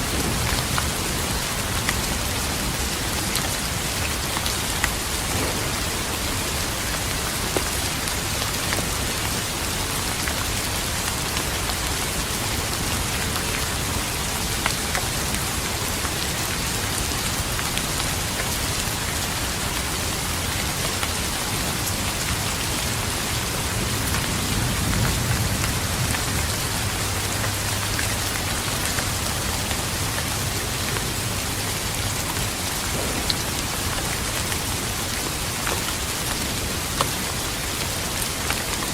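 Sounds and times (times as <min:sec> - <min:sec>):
rain drops ticking: 0:00.0 - 0:38.9
steady rain falling: 0:00.0 - 0:38.9
distant thunder rumble: 0:05.0 - 0:08.4, 0:32.8 - 0:35.5.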